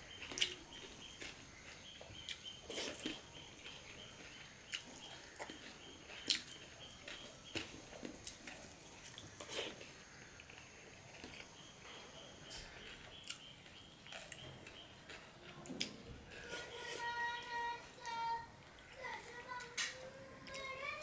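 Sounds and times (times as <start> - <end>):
chewing and lip smacking: 0.2 - 11.5, 12.7 - 16.4.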